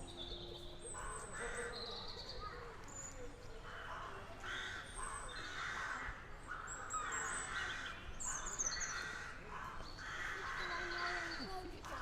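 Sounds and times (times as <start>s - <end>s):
crow cawing: 10.0s - 11.3s.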